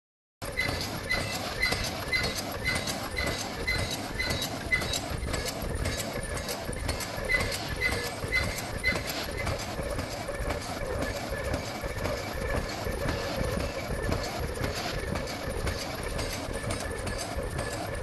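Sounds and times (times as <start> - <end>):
cutter clacking with high ring: 0.4 - 6.6
steady mechanical hum: 0.4 - 18.0.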